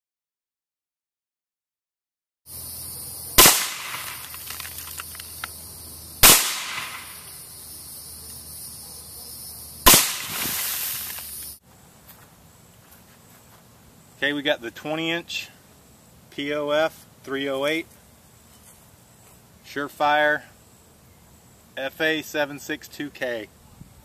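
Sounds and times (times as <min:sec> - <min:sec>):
suppressed rifle shots with echo: 0:03.3 - 0:04.6, 0:06.2 - 0:07.3, 0:09.8 - 0:10.9.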